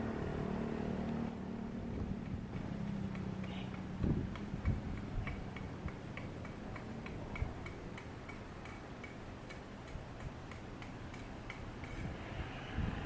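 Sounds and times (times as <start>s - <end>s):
faint regular ticking: 1.9s - 12.0s.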